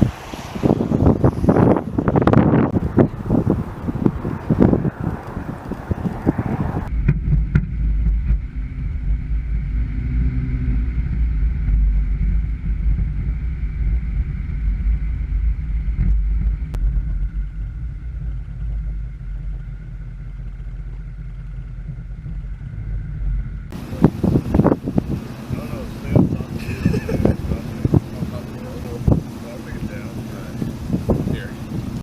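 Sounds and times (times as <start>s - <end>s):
steady low rumble: 0.0s - 32.0s
faint higher hum: 6.9s - 30.6s.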